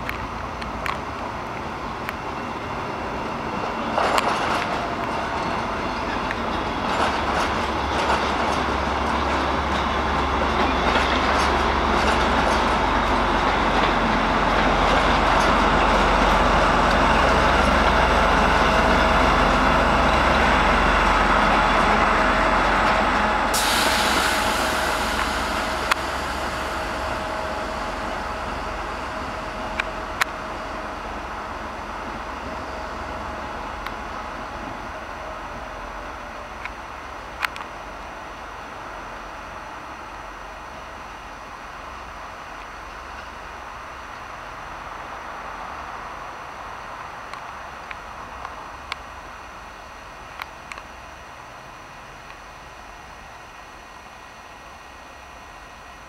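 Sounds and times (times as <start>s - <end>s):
train rumbling past: 0.0s - 56.0s
high hiss: 23.4s - 29.8s.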